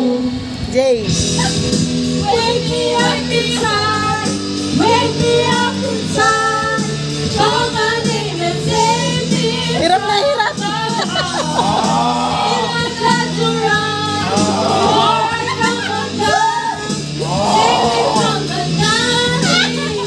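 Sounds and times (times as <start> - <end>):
backing music with held chords: 0.0 - 20.0
person singing: 4.8 - 20.0.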